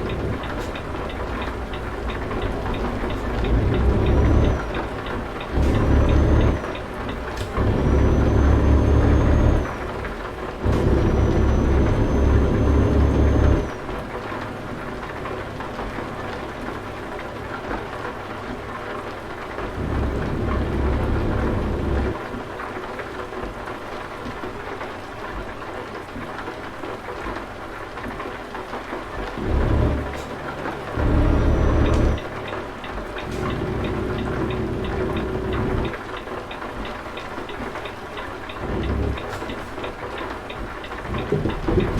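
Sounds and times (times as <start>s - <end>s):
heavy truck engine rumbling: 0.0s - 41.9s.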